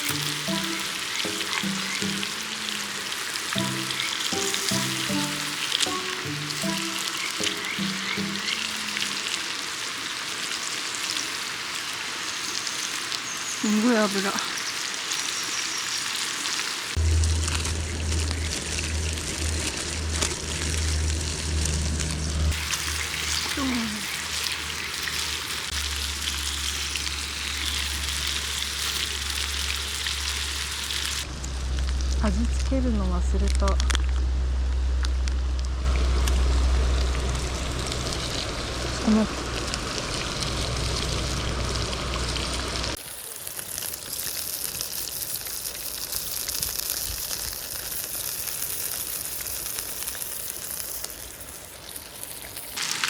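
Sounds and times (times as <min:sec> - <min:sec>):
food frying in hot oil: 0:00.0 - 0:32.1, 0:35.8 - 0:53.0
low steady rumble: 0:17.0 - 0:30.4, 0:31.1 - 0:43.0.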